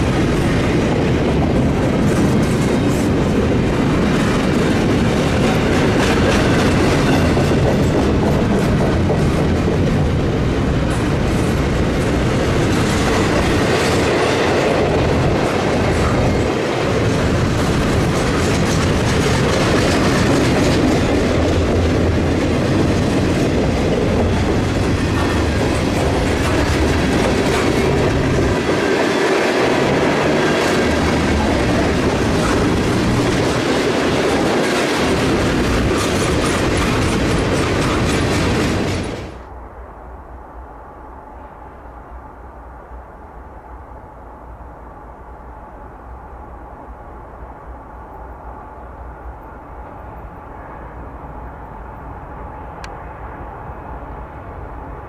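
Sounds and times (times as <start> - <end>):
train wheels clacking over rail joints: 0.0 - 39.5.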